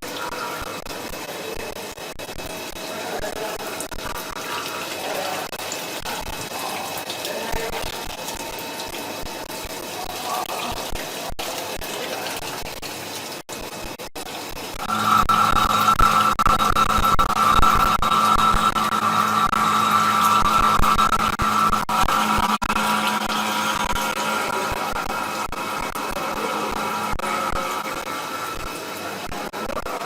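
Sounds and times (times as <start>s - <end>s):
coolant flowing: 0.0s - 30.0s
loud steady whine: 13.5s - 30.0s.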